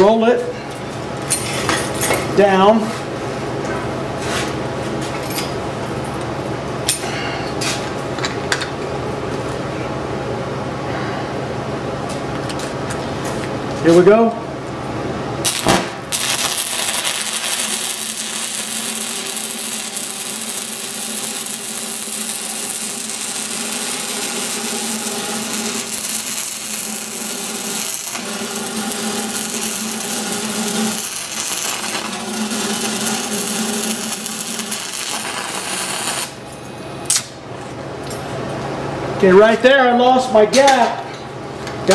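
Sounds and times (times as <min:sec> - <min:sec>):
welding arc crackling and sizzling: 0:15.4 - 0:37.4.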